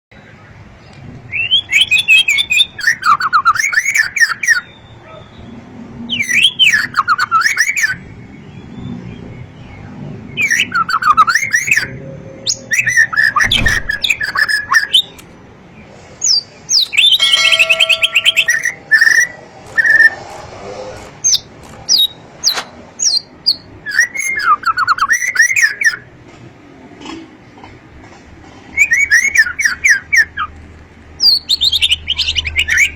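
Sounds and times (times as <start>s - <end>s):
bird singing whistled notes: 1.3s - 15.2s, 16.2s - 20.2s, 21.3s - 26.1s, 28.8s - 30.5s, 31.2s - 32.9s
buzzy run of bird notes: 16.9s - 20.2s.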